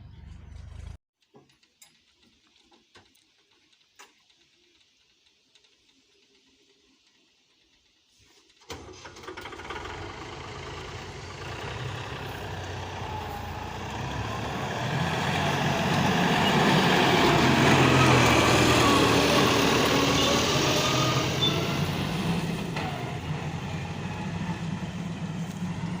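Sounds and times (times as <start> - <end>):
heavy vehicle diesel engine: 0.0 - 1.0, 8.7 - 26.0.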